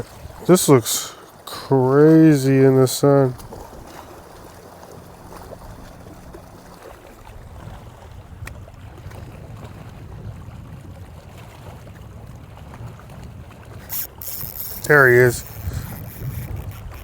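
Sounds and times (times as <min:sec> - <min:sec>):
water and wind rumbling: 0:00.0 - 0:17.0
faint hum: 0:02.0 - 0:08.2.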